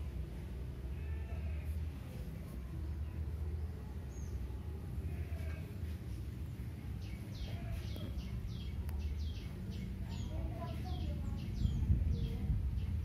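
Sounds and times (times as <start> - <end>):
steady low rumble: 5.8 - 13.0.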